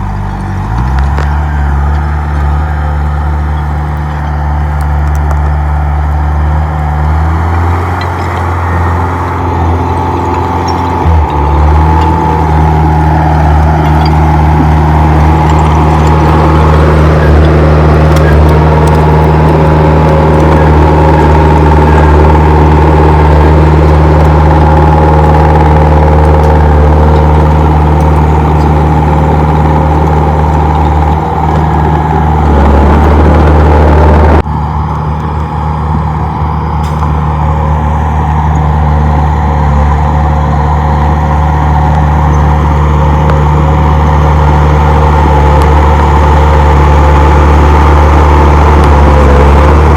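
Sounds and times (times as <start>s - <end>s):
bulldozer diesel engine running: 0.0s - 49.9s.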